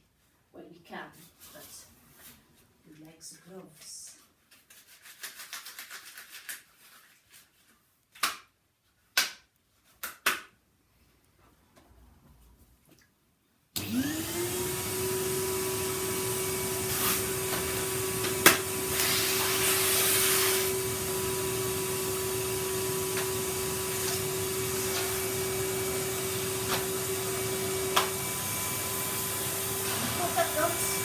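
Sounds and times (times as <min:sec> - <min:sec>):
vacuum cleaner whining on carpet: 0:13.8 - 0:31.0.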